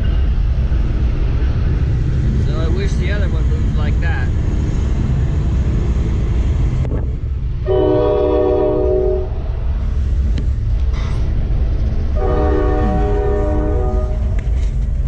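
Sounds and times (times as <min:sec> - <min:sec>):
low engine rumble: 0:00.0 - 0:15.0
train horn blasts: 0:07.6 - 0:09.4, 0:12.2 - 0:14.4.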